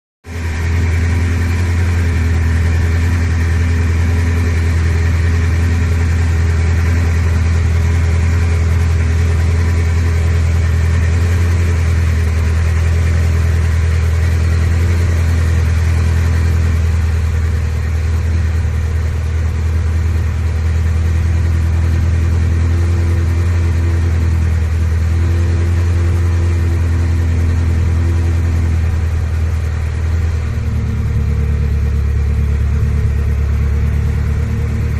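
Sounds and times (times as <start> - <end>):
car engine idling: 0.2 - 34.9.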